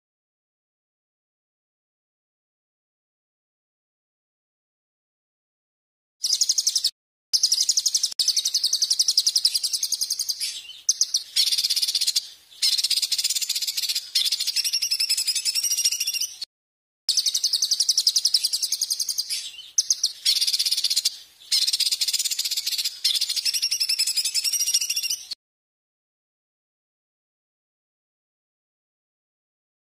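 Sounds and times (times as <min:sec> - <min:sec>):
songbird shrill trilling: 0:06.2 - 0:16.5, 0:17.1 - 0:25.4.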